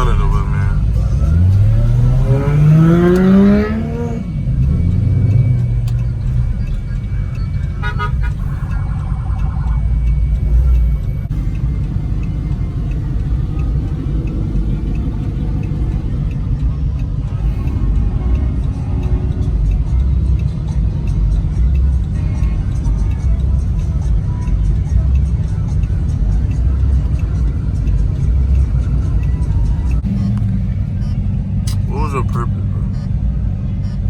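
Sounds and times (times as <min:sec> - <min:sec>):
car horn: 0:00.0 - 0:09.9, 0:29.9 - 0:34.0
car engine revving: 0:00.0 - 0:34.0
idling engines drone: 0:00.0 - 0:34.0.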